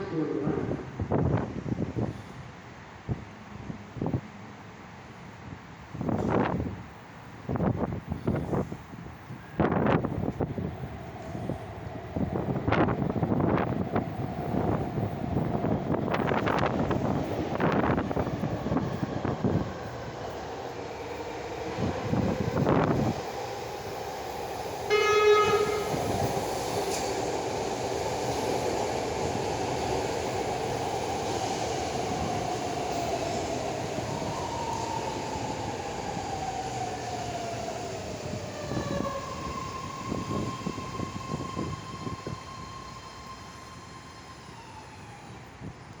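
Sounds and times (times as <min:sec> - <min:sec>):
train running with motor whine: 0:00.0 - 0:46.0
train horn blast: 0:24.9 - 0:26.1.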